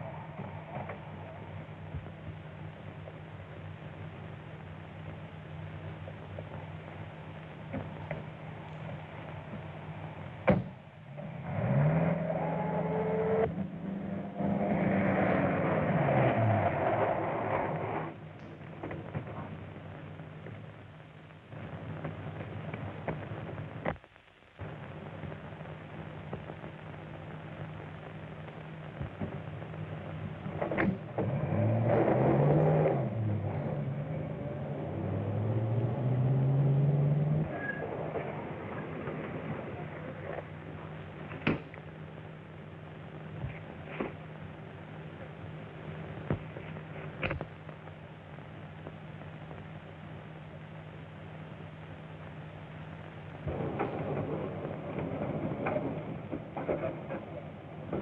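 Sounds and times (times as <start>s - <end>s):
car engine speeding up: 11.1s - 18.2s, 31.1s - 39.7s.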